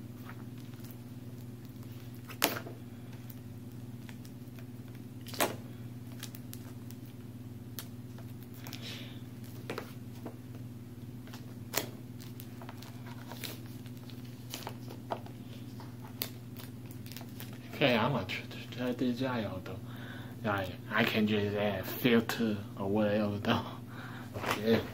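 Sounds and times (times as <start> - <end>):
low electrical hum: 0.0 - 24.9
packaging rustling: 11.2 - 17.8.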